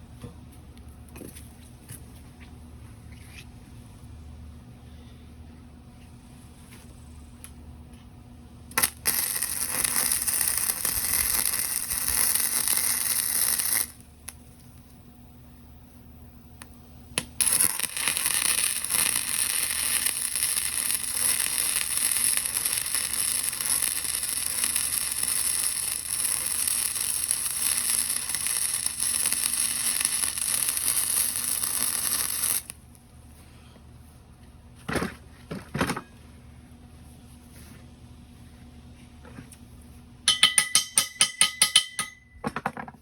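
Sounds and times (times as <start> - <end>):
arc welding crackling: 8.6 - 33.0.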